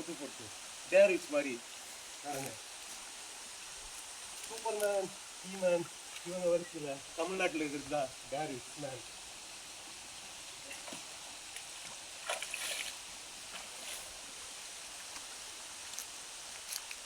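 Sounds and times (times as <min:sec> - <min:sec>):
shallow stream rushing: 0:00.0 - 0:17.0
light clicks and splashes: 0:04.4 - 0:05.1, 0:05.8 - 0:06.4, 0:10.7 - 0:14.1, 0:15.0 - 0:17.0.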